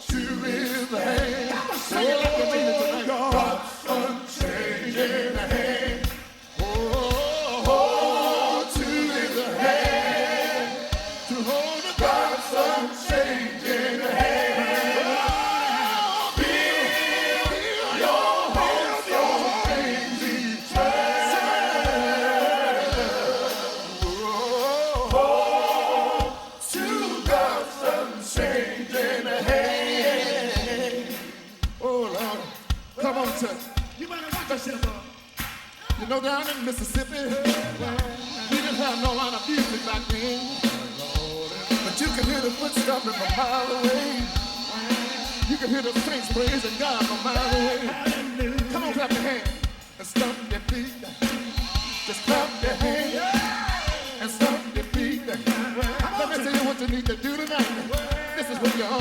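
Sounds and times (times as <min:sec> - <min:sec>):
choir and congregation singing: 0:00.0 - 0:59.0
low thumps keeping beat: 0:03.3 - 0:15.7, 0:16.4 - 0:26.7, 0:36.9 - 0:59.0.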